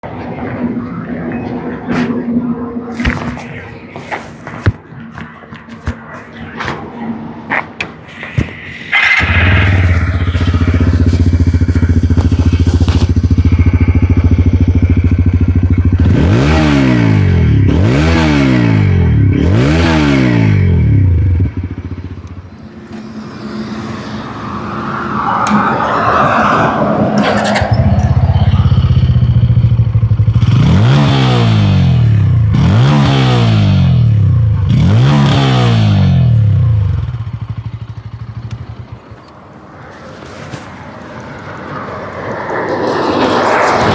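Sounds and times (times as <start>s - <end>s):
short scraping noise: 2.9s - 6.7s, 8.1s - 13.6s, 23.9s - 29.8s
motorcycle engine idling and revving: 7.8s - 25.3s, 27.1s - 41.8s.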